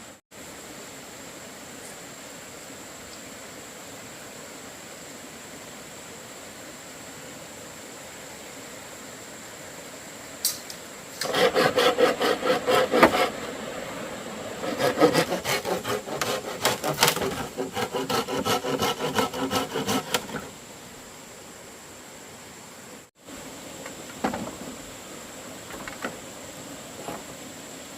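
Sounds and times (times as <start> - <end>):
blade rasping bamboo: 11.2 - 13.5, 14.6 - 20.6.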